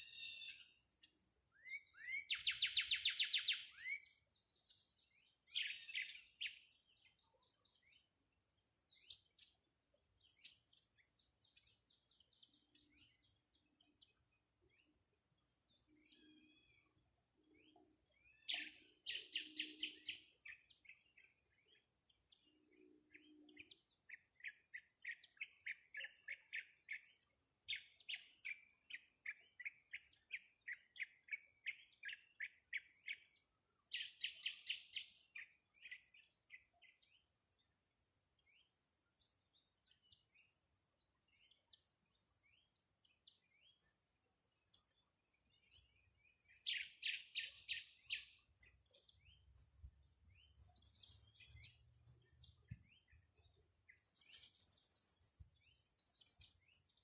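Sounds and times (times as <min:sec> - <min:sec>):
bird chirps: 0:00.0 - 0:37.7, 0:38.3 - 0:57.0
songbird trilling: 0:01.6 - 0:04.0, 0:05.5 - 0:06.6.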